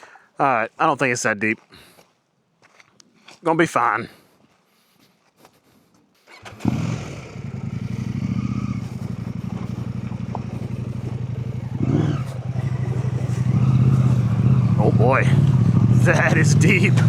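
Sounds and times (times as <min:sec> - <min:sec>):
motorcycle engine running: 0:06.4 - 0:17.0.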